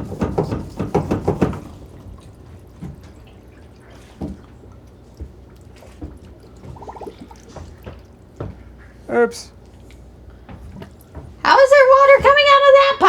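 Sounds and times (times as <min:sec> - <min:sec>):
soft knocks: 0:00.0 - 0:03.3, 0:07.5 - 0:09.0
water dripping from pipe: 0:01.6 - 0:11.2.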